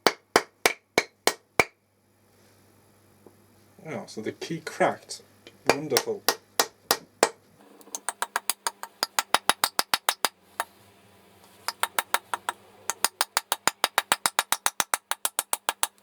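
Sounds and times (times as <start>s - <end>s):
hammer tapping wooden wedge: 0.0s - 1.8s, 5.7s - 7.4s, 8.0s - 10.7s, 11.7s - 16.0s.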